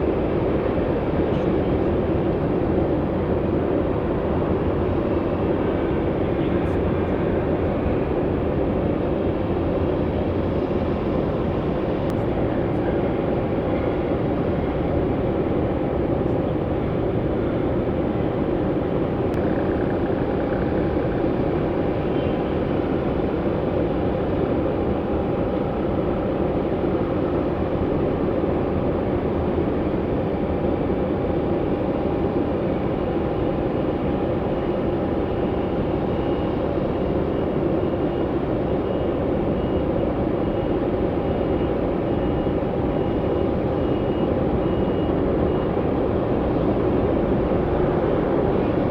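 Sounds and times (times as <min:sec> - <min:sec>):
jet engines running: 0:00.0 - 0:48.9
faint whine: 0:00.2 - 0:29.3.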